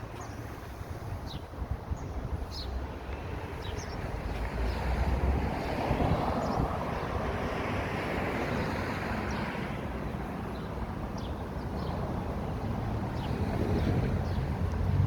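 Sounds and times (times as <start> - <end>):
vehicles passing: 0.0 - 15.0.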